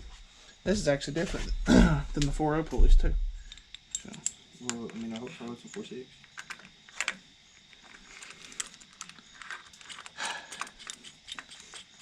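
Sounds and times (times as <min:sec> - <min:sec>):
metal parts clicking and clinking: 0:03.5 - 0:12.0.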